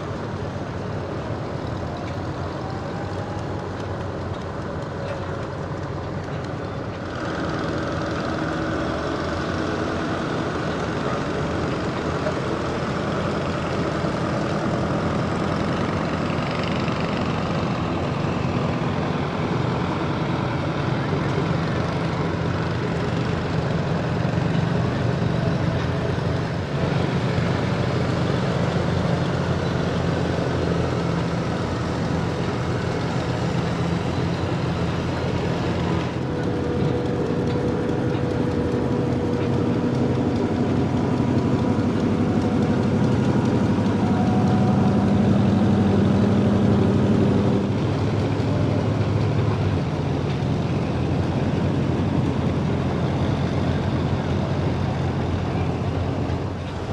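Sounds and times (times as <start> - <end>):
engine running: 0.0 - 56.9.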